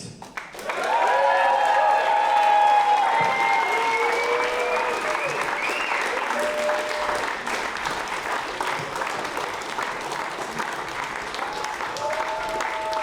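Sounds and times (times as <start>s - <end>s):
audience applauding: 0.2s - 13.0s
crowd calling out: 0.8s - 7.4s.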